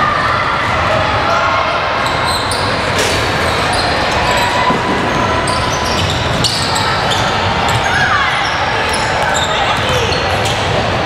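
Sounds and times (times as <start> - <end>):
din of spectators' voices: 0.0 - 11.0
basketball bouncing on gym floor: 8.9 - 10.7.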